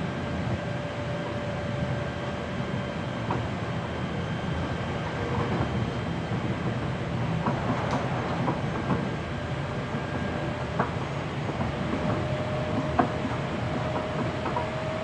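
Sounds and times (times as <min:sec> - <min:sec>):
train wheels rumbling: 0:00.0 - 0:15.0
rail joint clicks: 0:05.1 - 0:15.0.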